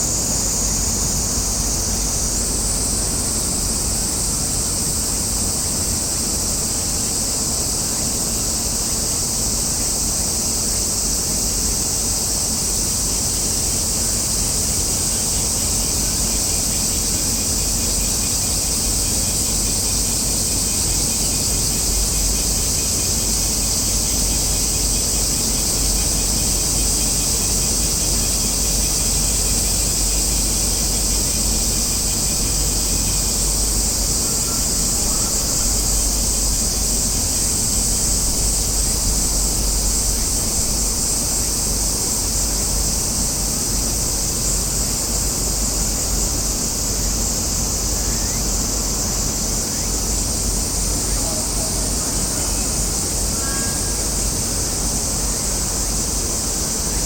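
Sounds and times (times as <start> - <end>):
cicadas droning: 0.0 - 57.0.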